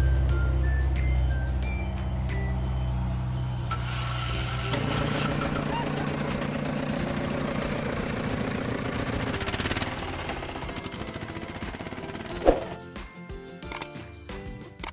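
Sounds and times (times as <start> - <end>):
engine running with rattle: 0.0 - 13.0
scattered clicks: 13.7 - 14.0.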